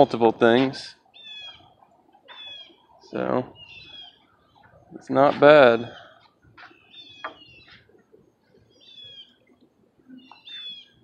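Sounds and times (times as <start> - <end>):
high bird chirps: 1.1 - 5.0, 5.8 - 8.0, 8.6 - 11.0.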